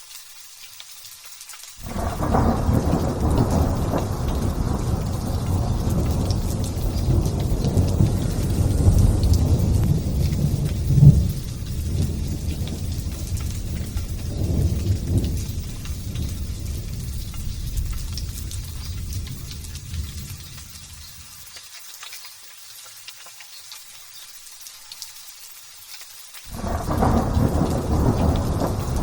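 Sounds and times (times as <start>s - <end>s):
rain patter: 0.0s - 29.0s
rolling thunder: 1.8s - 20.8s, 26.5s - 29.0s.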